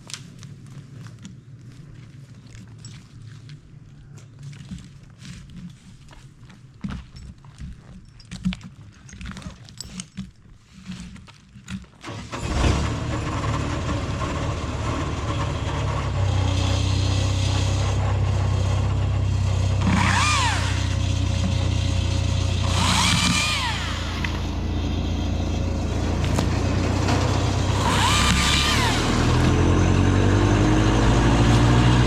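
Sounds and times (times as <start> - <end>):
motor humming: 14.0 - 32.0.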